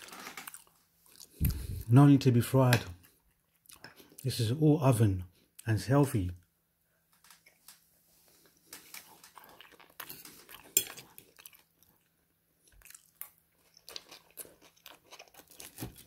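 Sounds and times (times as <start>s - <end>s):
chewing crunchy chips: 0.0s - 1.9s, 8.7s - 16.0s.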